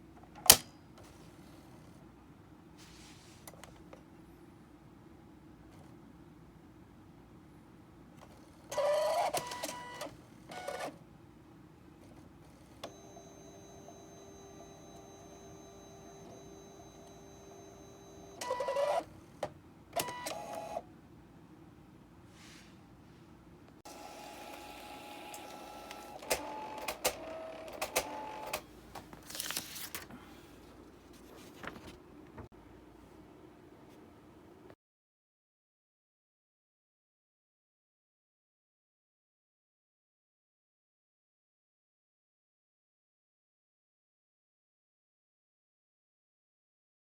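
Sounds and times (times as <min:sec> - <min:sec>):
inkjet printer mechanism running: 0:12.6 - 0:19.1, 0:23.9 - 0:28.7
printer mechanism clicks: 0:24.3 - 0:29.1.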